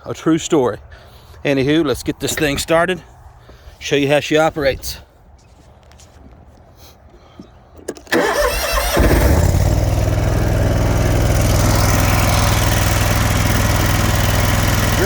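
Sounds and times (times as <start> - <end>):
mower engine starting and running: 8.0 - 15.0.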